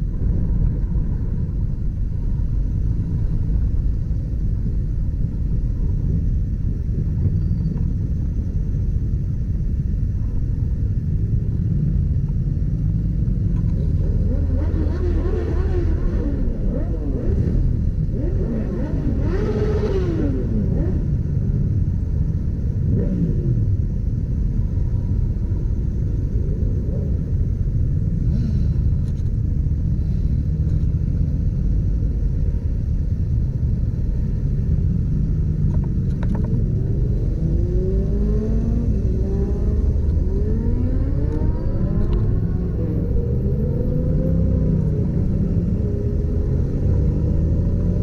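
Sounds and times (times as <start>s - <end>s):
low rumble: 0.0s - 48.0s
motorcycle engine accelerating: 12.1s - 29.9s, 32.5s - 48.0s.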